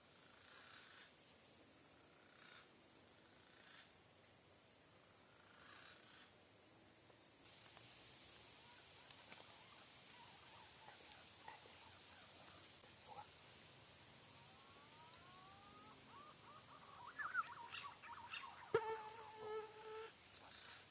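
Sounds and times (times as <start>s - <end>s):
crickets droning: 0.0s - 20.9s
faint cricket chirps: 0.0s - 20.9s.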